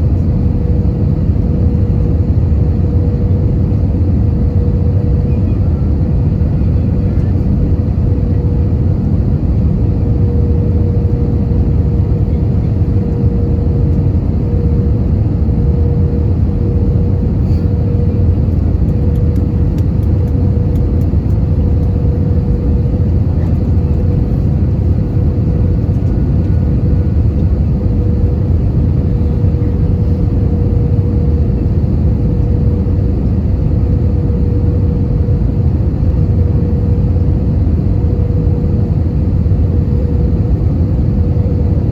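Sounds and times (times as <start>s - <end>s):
airplane cabin engine rumble: 0.0s - 41.9s
constant hum: 0.0s - 41.9s.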